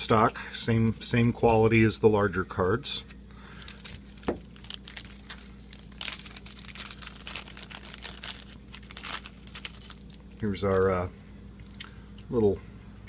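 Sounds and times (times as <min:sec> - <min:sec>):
plastic bags crinkling: 0:03.4 - 0:10.9.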